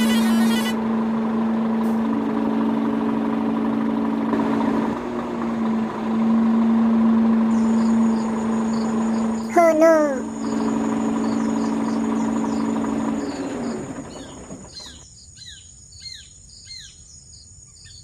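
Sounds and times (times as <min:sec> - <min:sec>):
small motor humming: 0:00.0 - 0:01.5, 0:07.5 - 0:15.1
higher motor hum: 0:00.0 - 0:15.1.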